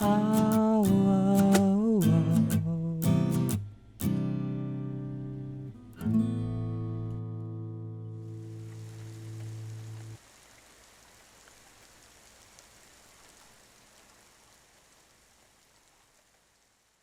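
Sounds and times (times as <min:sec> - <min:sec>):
rain hiss and patter: 0:00.0 - 0:04.3, 0:08.0 - 0:17.0
acoustic guitar chord: 0:00.0 - 0:10.2.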